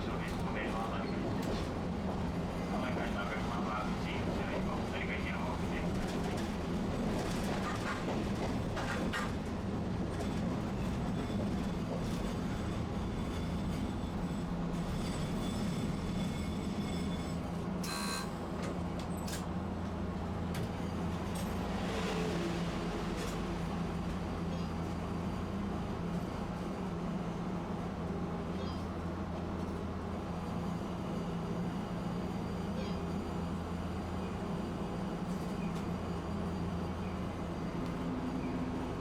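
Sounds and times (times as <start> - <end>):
streetcar rumbling: 0.0 - 39.0.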